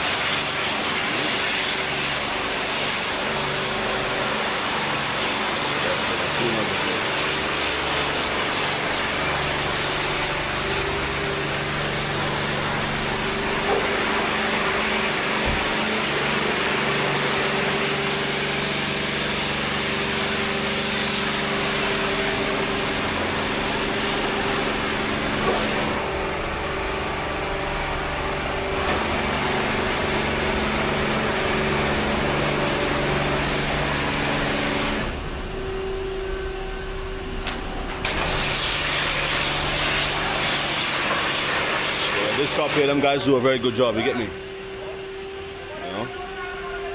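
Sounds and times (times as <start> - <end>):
loud spray hiss: 0.0 - 26.4, 37.5 - 43.8
motor hum: 2.3 - 41.9.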